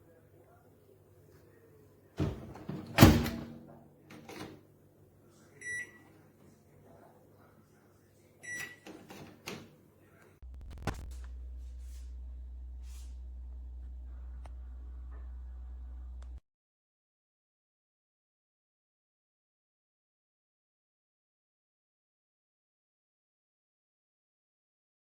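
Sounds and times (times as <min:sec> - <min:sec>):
microwave oven humming: 0:02.2 - 0:03.8, 0:11.1 - 0:16.4
microwave door clunk: 0:02.2 - 0:04.6.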